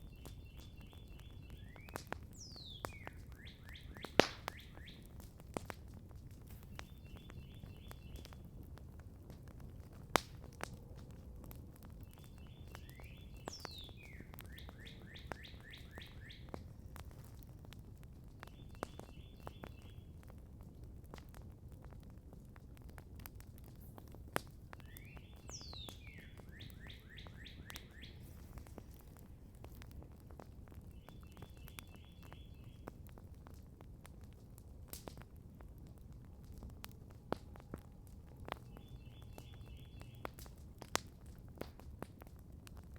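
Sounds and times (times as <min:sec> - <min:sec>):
songbirds trilling: 0:00.0 - 0:05.2, 0:06.5 - 0:08.4, 0:11.8 - 0:16.6, 0:18.4 - 0:20.0, 0:24.8 - 0:29.9, 0:30.8 - 0:32.9, 0:38.5 - 0:40.4
campfire crackling: 0:00.0 - 0:42.9.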